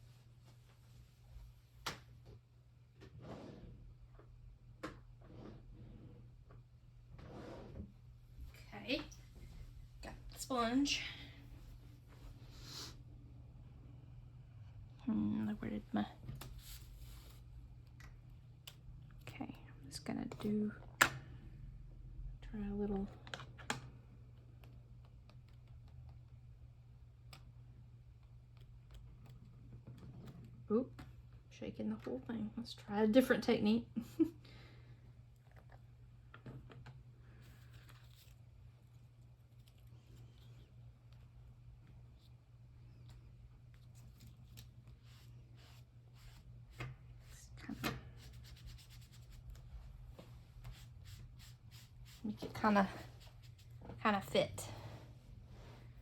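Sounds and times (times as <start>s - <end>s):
low steady hum: 0.0s - 56.0s
sponge dabbing paint on paper: 48.1s - 49.7s, 50.5s - 53.8s.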